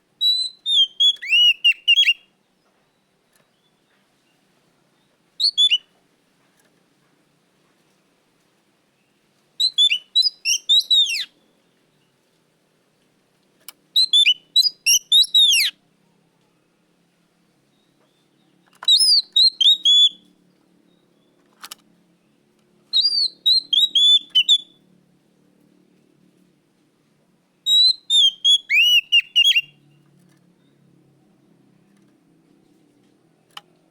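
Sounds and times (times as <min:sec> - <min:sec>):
bird singing whistled phrases: 0:00.2 - 0:02.3, 0:05.4 - 0:05.9, 0:09.6 - 0:11.4, 0:14.0 - 0:15.8, 0:18.1 - 0:20.2, 0:22.9 - 0:24.8, 0:27.7 - 0:29.8.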